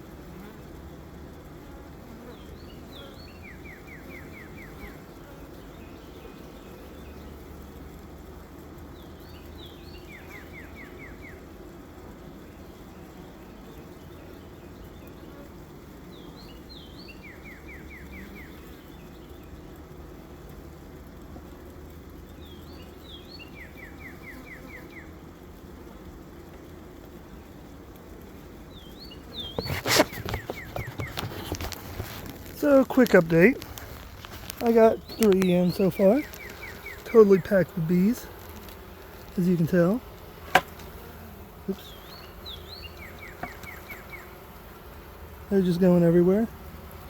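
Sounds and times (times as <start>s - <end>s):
honeybees humming: 0.0s - 47.0s
bird singing: 2.3s - 5.0s, 9.0s - 11.4s, 16.1s - 19.6s, 22.4s - 25.1s, 28.7s - 31.3s, 34.5s - 38.3s, 39.4s - 44.5s.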